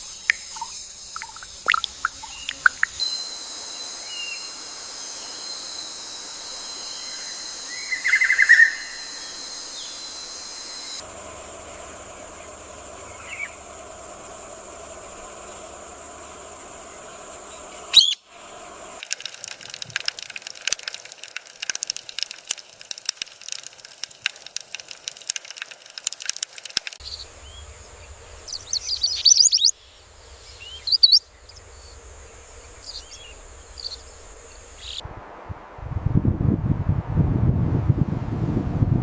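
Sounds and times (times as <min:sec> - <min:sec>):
wild birds chirping: 0:00.0 - 0:35.0
rapid irregular clicking: 0:19.0 - 0:27.0.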